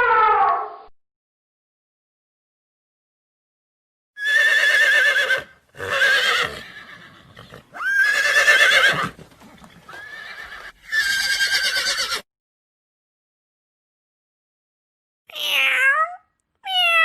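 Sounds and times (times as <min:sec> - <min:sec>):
horse neighing: 0:04.2 - 0:12.2.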